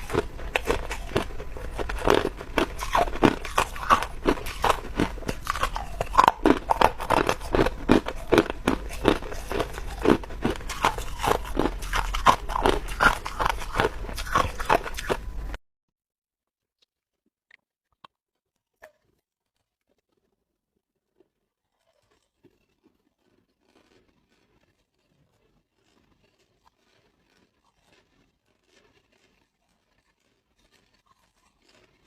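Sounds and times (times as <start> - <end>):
ice crunching while chewed: 0.0 - 15.6, 17.5 - 32.0.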